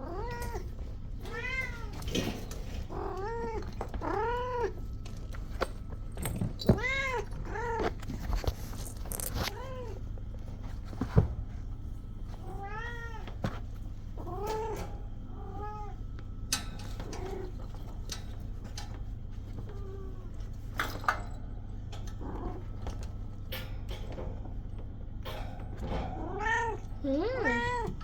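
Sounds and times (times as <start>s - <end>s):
kittens meowing: 26.3s - 28.0s.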